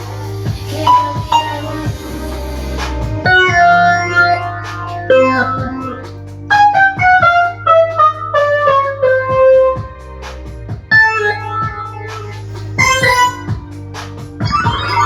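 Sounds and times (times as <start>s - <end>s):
drum beat: 0.0s - 7.8s, 8.9s - 15.0s
bass line: 0.0s - 15.0s
electric piano melody: 0.6s - 2.4s, 3.0s - 10.1s.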